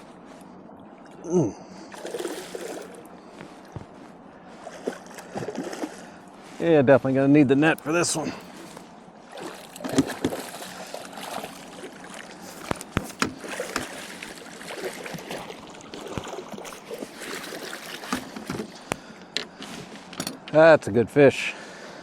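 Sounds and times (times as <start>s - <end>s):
water sloshing against boat: 0.0s - 20.6s
knocks and clicks against boat: 9.8s - 10.5s, 12.5s - 14.4s, 15.2s - 16.8s, 17.8s - 20.6s.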